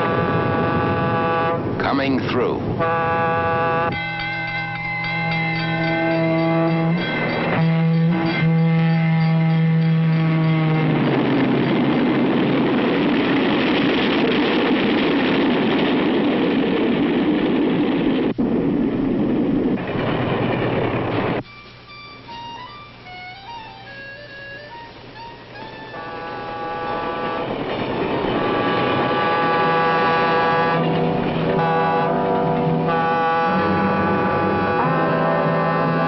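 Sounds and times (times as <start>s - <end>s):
train horn chord: 0.0s - 1.8s, 2.8s - 12.1s, 23.0s - 36.0s
train passing with rushing roar: 0.0s - 36.0s.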